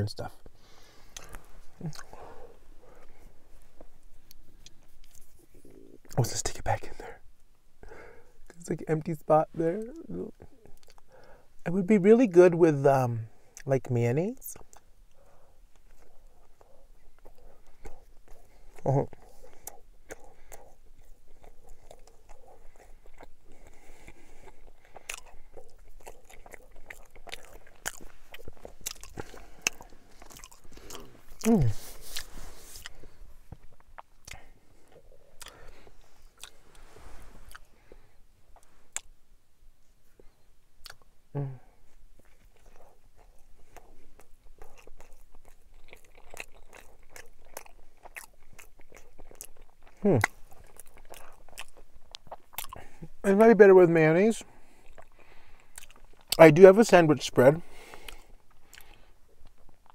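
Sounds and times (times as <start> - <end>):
person chewing food: 0.7 - 6.2, 10.4 - 11.4, 14.6 - 39.2, 40.2 - 41.2, 41.8 - 53.2, 54.4 - 56.4, 57.7 - 59.9.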